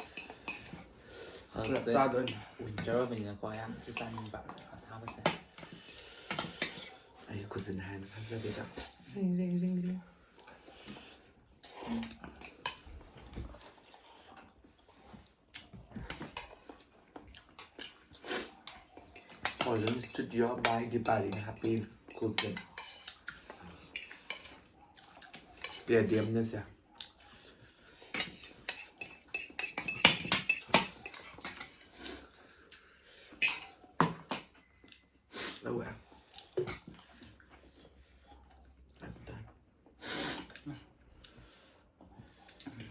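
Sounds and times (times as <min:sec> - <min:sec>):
utensils clicking on dishes: 0:00.0 - 0:00.8, 0:18.7 - 0:24.6, 0:28.1 - 0:31.9, 0:33.3 - 0:34.5
person chewing: 0:10.4 - 0:20.0, 0:22.6 - 0:25.9.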